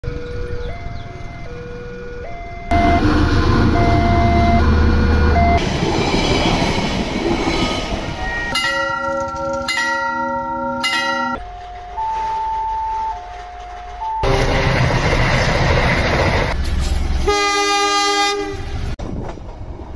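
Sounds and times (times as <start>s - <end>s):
two-tone crossing warning chime: 0.0s - 5.6s, 7.5s - 14.6s
train passing with rumble: 0.1s - 10.0s, 10.8s - 19.9s
train horn blasts: 17.2s - 18.8s.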